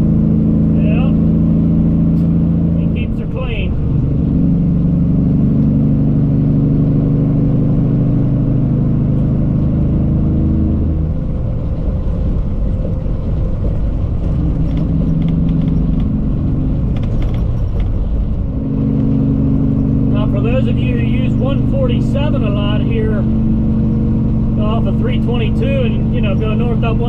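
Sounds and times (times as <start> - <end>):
diesel truck engine running: 0.0 - 27.0
light rattling clicks: 12.3 - 18.5.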